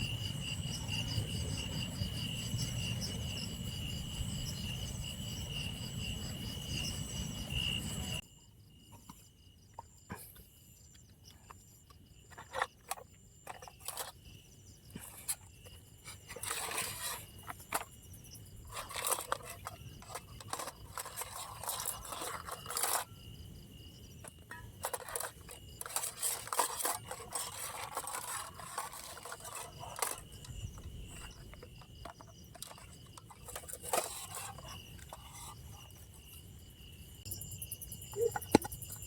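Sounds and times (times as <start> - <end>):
insects chirping: 0.0 - 39.0
clicks and rustling: 24.3 - 36.0.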